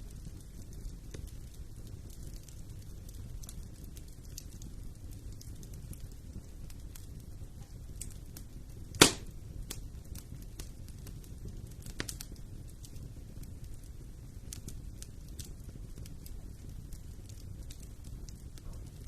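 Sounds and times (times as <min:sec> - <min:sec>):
fireplace fire crackling: 0:00.0 - 0:19.0
loud sharp pop: 0:09.0 - 0:09.3.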